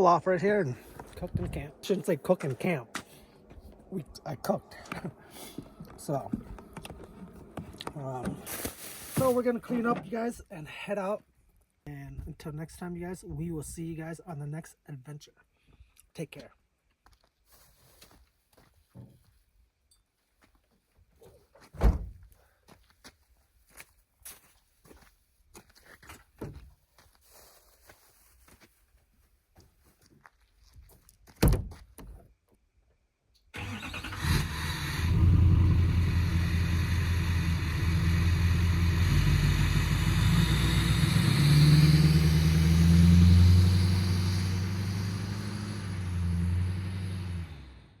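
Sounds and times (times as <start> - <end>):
pickup truck engine: 33.6 - 48.0.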